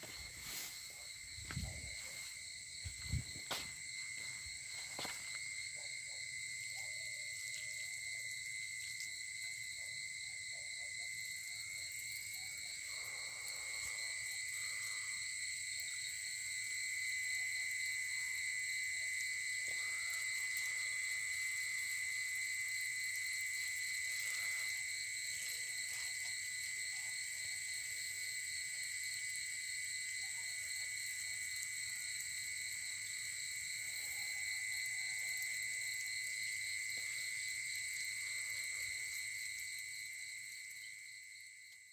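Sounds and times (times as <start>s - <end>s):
insect trilling: 10.5s - 16.2s, 18.1s - 28.2s, 30.2s - 41.1s.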